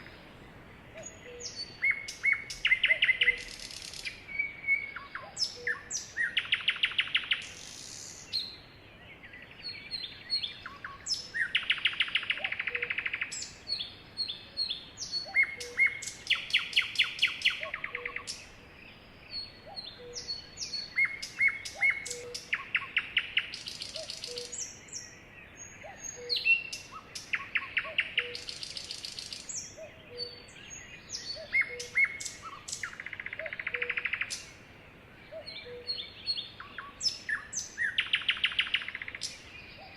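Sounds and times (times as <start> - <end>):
sparrows chirping: 0.0 - 39.9
bird trills: 25.8 - 34.5.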